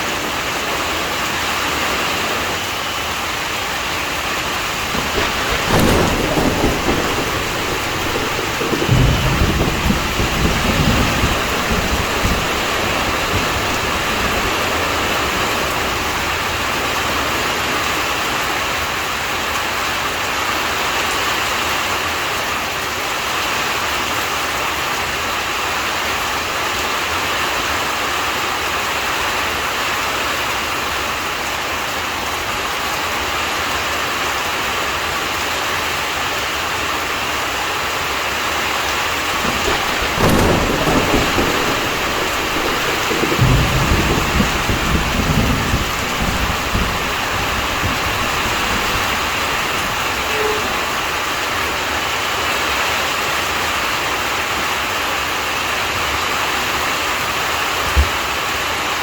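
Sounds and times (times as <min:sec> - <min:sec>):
steady rain: 0:00.0 - 0:59.0
thunder crack and rumbling: 0:04.4 - 0:19.6, 0:38.9 - 0:54.5.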